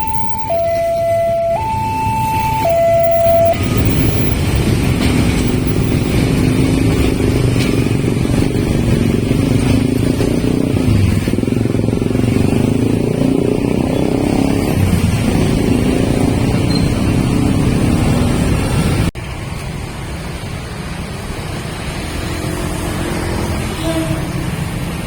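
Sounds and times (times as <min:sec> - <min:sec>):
two-tone warning alarm: 0:00.0 - 0:06.2
diesel locomotive engine rumbling: 0:00.0 - 0:21.9.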